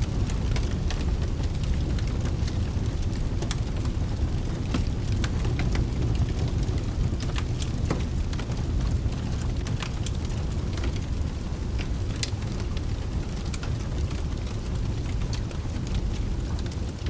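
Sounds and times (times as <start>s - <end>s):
faint rain hiss: 0.0s - 17.0s
wood fire crackling and popping: 0.0s - 17.0s.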